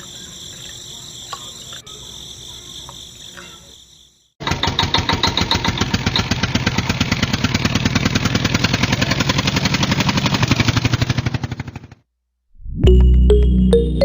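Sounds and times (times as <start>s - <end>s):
small motor chugging clatter: 4.4s - 12.0s.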